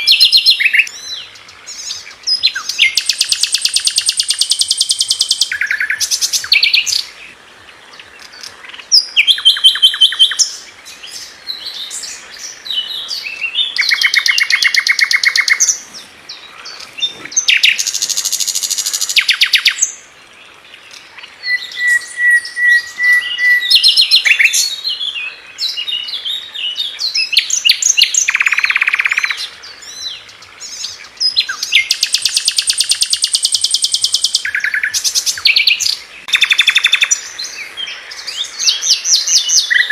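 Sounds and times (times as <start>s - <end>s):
flycatcher singing: 0.0s - 7.2s, 7.9s - 20.0s, 20.8s - 39.9s.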